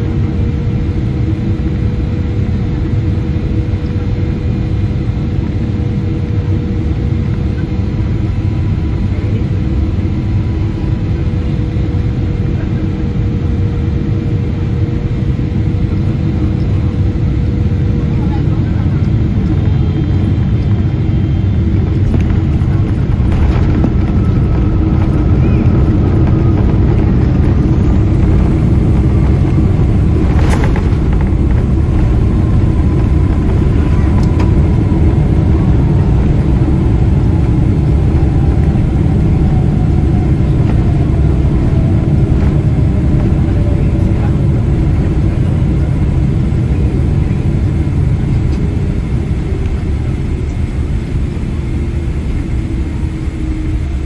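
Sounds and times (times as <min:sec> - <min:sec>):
airplane cabin engine rumble: 0:00.0 - 0:54.0
engine whine falling in pitch: 0:19.0 - 0:47.0.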